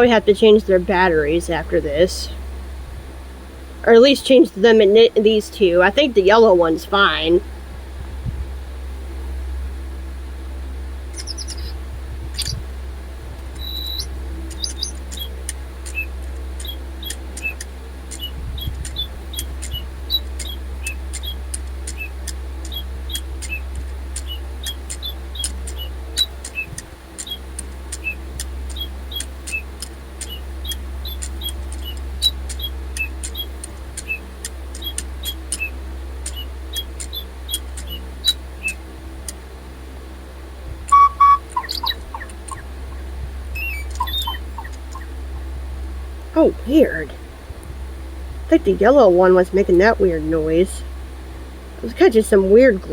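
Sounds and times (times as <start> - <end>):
robot toy birds chirping electronically: 11.2 - 11.8, 12.4 - 12.6, 13.6 - 38.8, 40.9 - 45.5.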